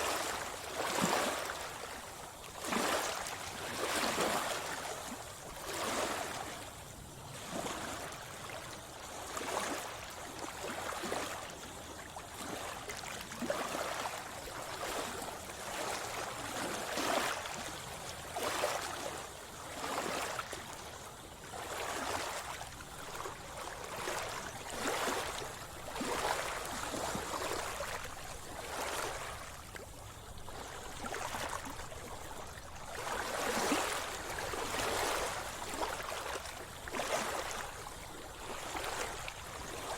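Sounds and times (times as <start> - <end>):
water splashing and sloshing: 0.0 - 39.9.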